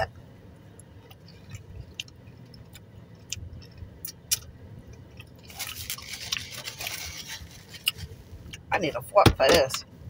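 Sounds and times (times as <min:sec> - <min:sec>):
chewing food: 0:00.8 - 0:07.0
rustling: 0:05.4 - 0:08.5.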